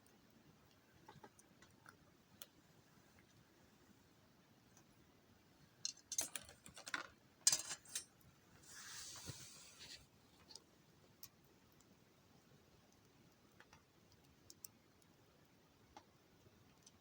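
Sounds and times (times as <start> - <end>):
wood fire crackling: 4.6 - 17.0
fire hissing: 8.6 - 10.1.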